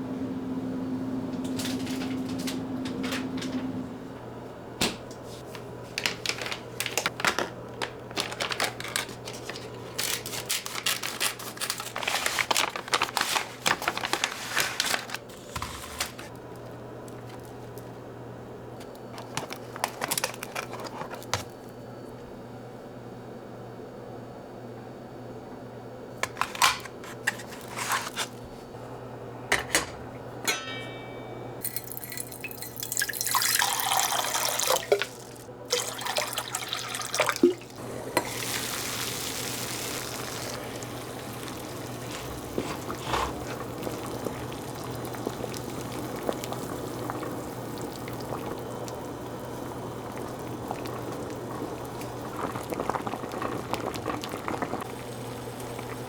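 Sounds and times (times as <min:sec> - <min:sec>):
water running and pouring: 0:31.6 - 0:56.0.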